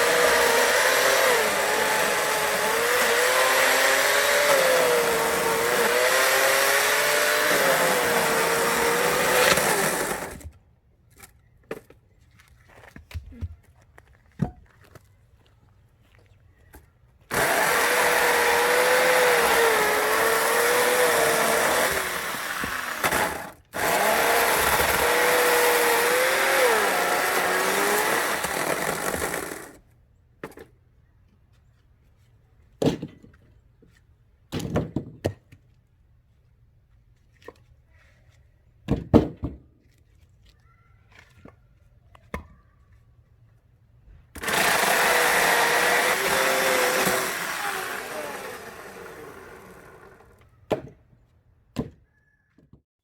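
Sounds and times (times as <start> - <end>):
chainsaw cutting wood: 0.0 - 10.6, 17.3 - 29.8, 44.4 - 50.4.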